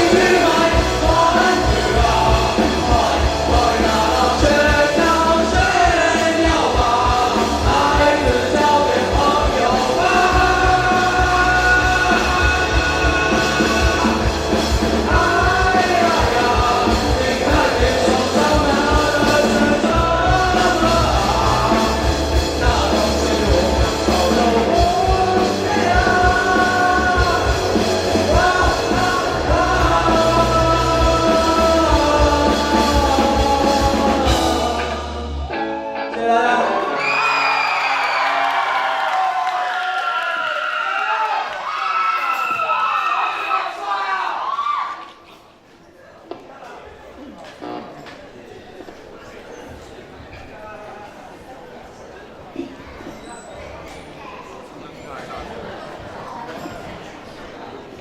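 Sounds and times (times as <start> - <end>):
live rock band with singer: 0.0 - 37.9
crowd yelling: 0.0 - 45.3.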